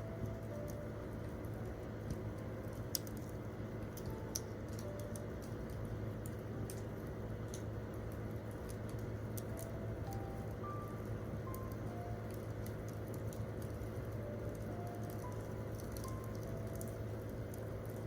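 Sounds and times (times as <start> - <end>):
soft piano notes: 0.0 - 18.0
campfire crackling and popping: 0.6 - 10.6, 11.4 - 18.0.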